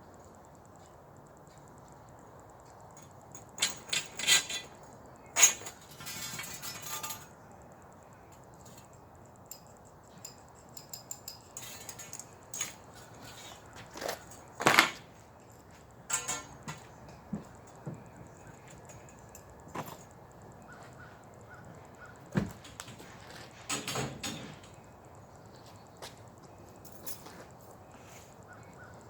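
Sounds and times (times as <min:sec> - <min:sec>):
metal poles clinking and clanking: 0:03.0 - 0:07.4, 0:08.3 - 0:17.8, 0:22.6 - 0:24.8
metal rattle: 0:03.4 - 0:07.4, 0:08.6 - 0:15.1, 0:16.1 - 0:16.8.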